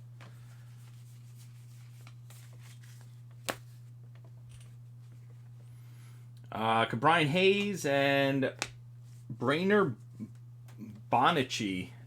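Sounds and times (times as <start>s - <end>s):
steady low hum: 0.0s - 12.0s
cards sliding through hands: 0.4s - 3.8s.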